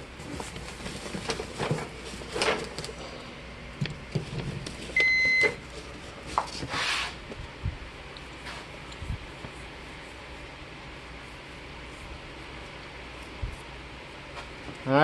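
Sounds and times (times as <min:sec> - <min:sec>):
clicks and rustling from handling: 0:00.3 - 0:03.0.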